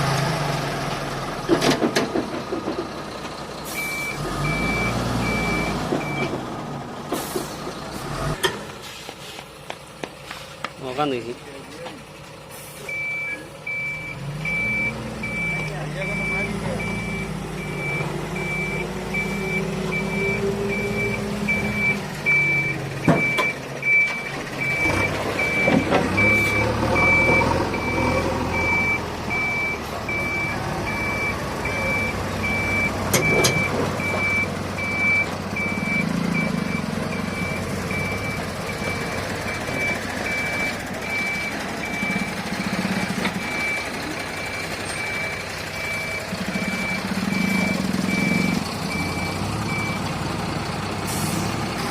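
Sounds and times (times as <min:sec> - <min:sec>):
diesel engines running: 0:00.0 - 0:51.9
reversing alarm beeping: 0:03.7 - 0:06.4, 0:12.8 - 0:50.1.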